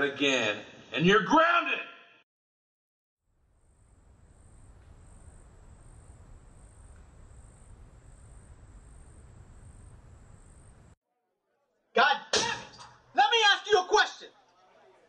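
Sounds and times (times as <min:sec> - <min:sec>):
crickets chirping: 0:03.3 - 0:11.0
background hiss and rumble: 0:03.5 - 0:11.0.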